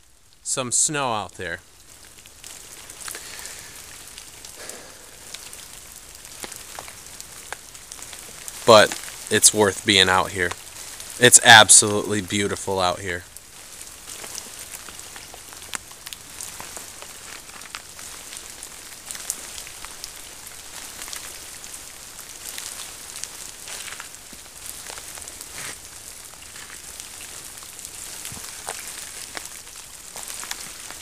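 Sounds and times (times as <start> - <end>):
rain with drops ticking: 0.0 - 31.0.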